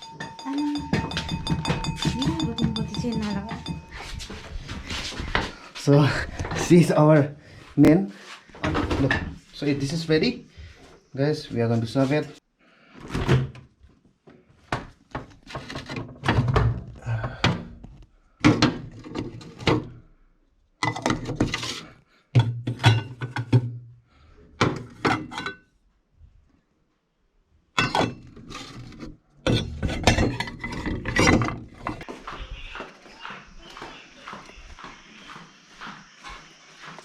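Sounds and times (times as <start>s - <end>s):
spoons knocking on pots and plates: 0.0s - 4.3s.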